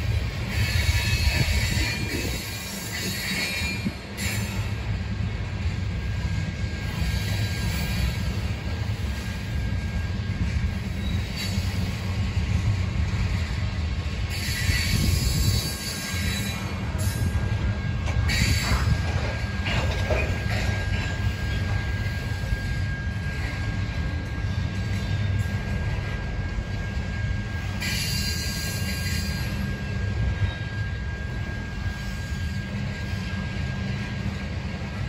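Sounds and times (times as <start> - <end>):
train wheels rumbling on rails: 0.0 - 35.0
wheel squeal: 0.5 - 4.7, 10.9 - 12.0, 14.3 - 17.4, 27.1 - 33.4.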